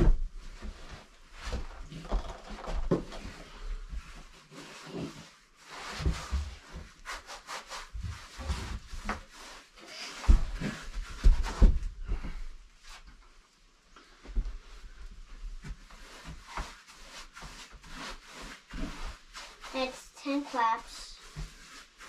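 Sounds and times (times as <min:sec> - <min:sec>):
paintbrush scrubbing rough wood: 0:15.9 - 0:22.0.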